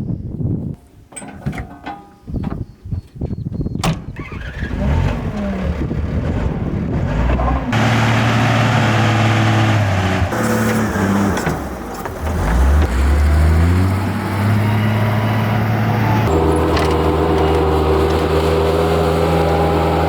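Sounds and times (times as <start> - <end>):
earthmoving machine engine: 4.2 - 20.0.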